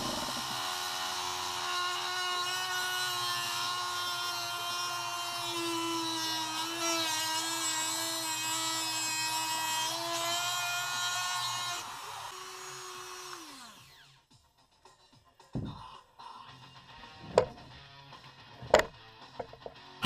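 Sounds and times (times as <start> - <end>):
cutting wheel whining through metal: 0.0 - 4.0.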